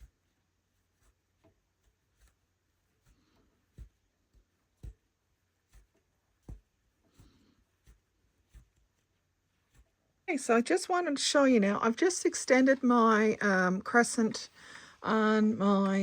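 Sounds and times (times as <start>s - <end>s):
rug hook punching through cloth: 1.0s - 10.0s.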